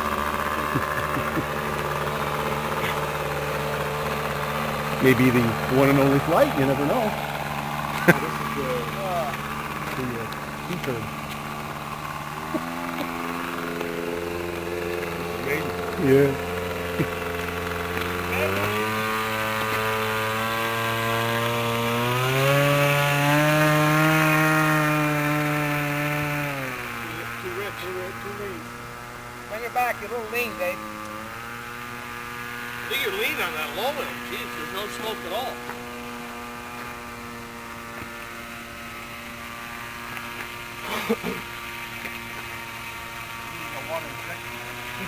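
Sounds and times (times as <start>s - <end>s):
model airplane engine revving: 0.0s - 45.0s
person speaking: 0.2s - 19.2s.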